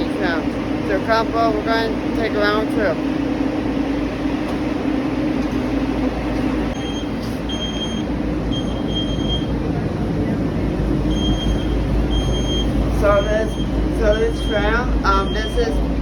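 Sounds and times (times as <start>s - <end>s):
tram station background noise: 0.0s - 16.0s
high electronic beeps: 11.1s - 15.8s.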